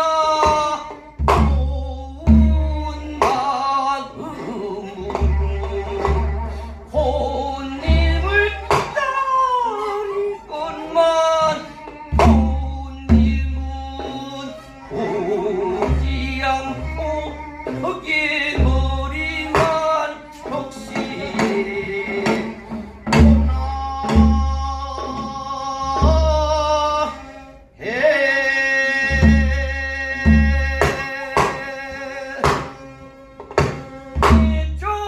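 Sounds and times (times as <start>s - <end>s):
person singing with vibrato: 0.0s - 33.2s
instrumental accompaniment: 0.0s - 35.0s.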